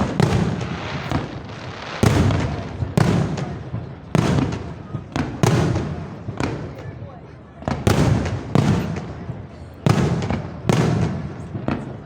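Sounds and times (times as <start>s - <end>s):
fireworks crackle: 0.0s - 7.0s
fireworks bangs: 0.0s - 12.0s.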